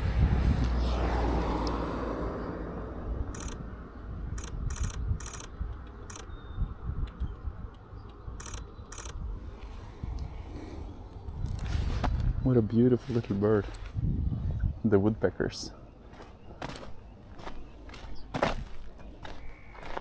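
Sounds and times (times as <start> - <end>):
wind rumble on microphone: 0.0 - 15.3
camera shutter bursts: 3.4 - 3.6, 4.4 - 6.3, 8.4 - 9.2.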